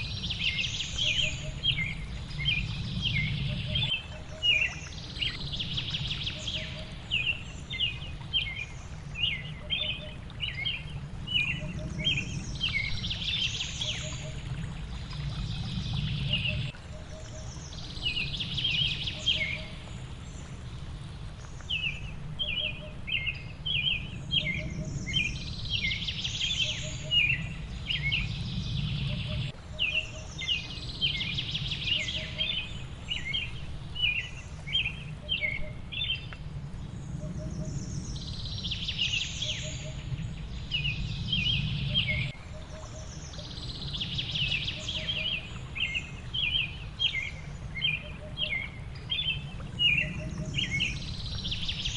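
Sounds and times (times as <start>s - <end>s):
steady low rush: 0.0s - 7.7s, 10.2s - 19.1s, 34.5s - 42.5s
songbirds chirping: 0.0s - 51.9s.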